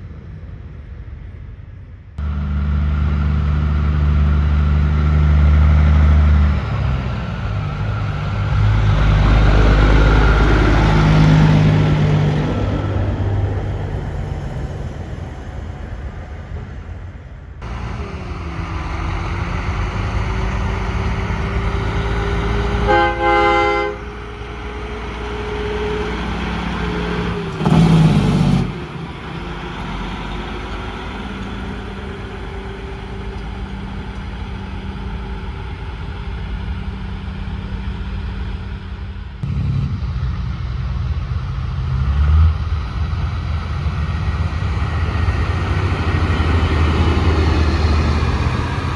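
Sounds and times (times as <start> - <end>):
truck engines passing: 0.0 - 48.9
truck horn blast: 21.4 - 27.9
loud rush of noise: 31.0 - 48.9.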